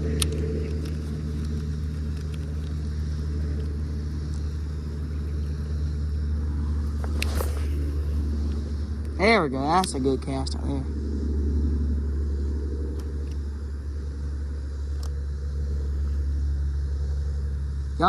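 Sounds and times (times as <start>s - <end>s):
sharp clicks: 0.0s - 5.7s
low motor hum: 0.0s - 18.0s.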